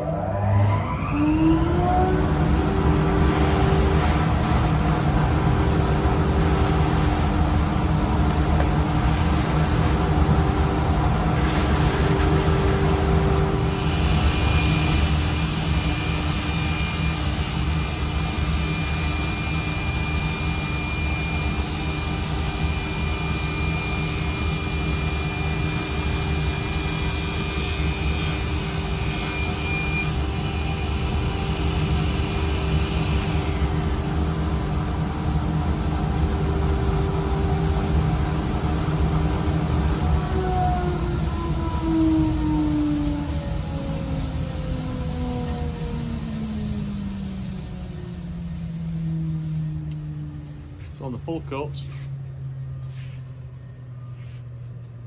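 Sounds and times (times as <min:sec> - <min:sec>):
higher steady whine: 0:00.0 - 0:54.7
motor running steadily: 0:01.1 - 0:14.6.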